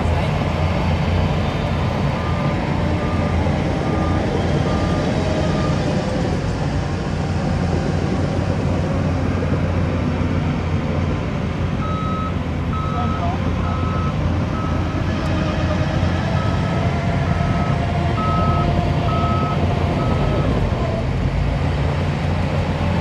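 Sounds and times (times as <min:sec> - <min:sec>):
diesel construction machinery running: 0:00.0 - 0:23.0
faint reversing alarm beeps: 0:11.8 - 0:14.9.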